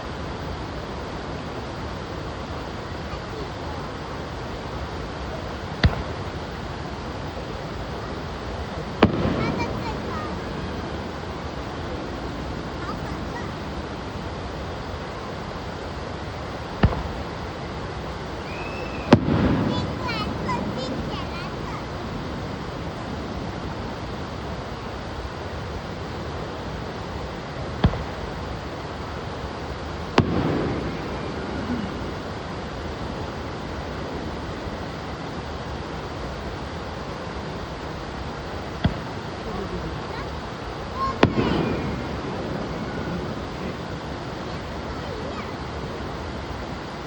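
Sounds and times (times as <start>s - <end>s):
steady rushing noise: 0.0s - 47.0s
firework bang: 5.7s - 14.1s, 16.6s - 24.3s, 27.0s - 34.7s, 38.5s - 45.7s.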